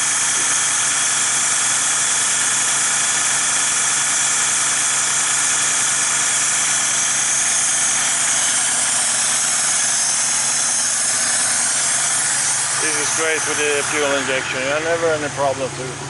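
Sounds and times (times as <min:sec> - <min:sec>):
car engine idling: 0:07.8 - 0:16.0.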